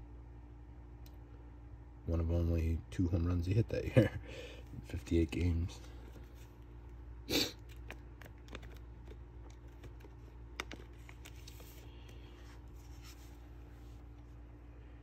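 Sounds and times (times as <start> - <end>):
steady low hum: 0.0 - 15.0
trading cards handled: 7.6 - 14.3.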